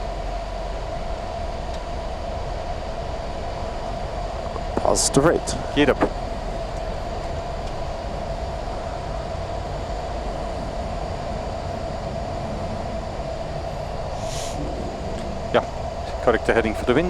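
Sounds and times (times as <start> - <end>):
jet engines and rushing air: 2.6 - 17.0
steady mid-pitched tone: 14.2 - 17.0.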